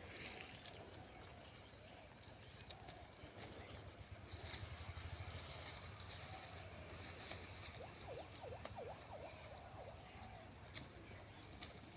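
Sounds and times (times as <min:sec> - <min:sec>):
low steady rumble: 0:00.7 - 0:11.9
bird call dipping chirps: 0:07.7 - 0:10.5.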